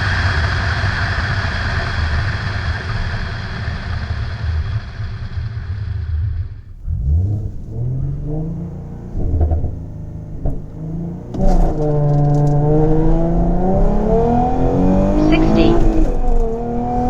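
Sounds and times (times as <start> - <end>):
car engine revving and accelerating: 6.7 - 17.0.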